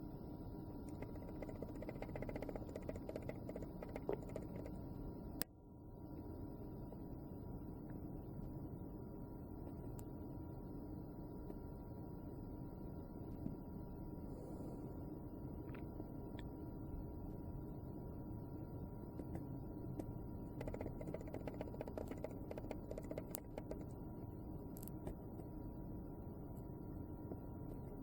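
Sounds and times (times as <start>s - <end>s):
faint steady hum: 0.0s - 28.0s
small clicks and ticks: 0.8s - 4.8s, 20.0s - 24.0s.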